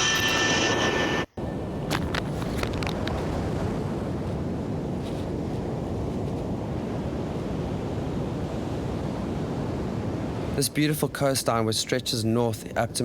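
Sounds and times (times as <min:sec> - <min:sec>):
wind buffeting microphone: 0:01.4 - 0:11.7.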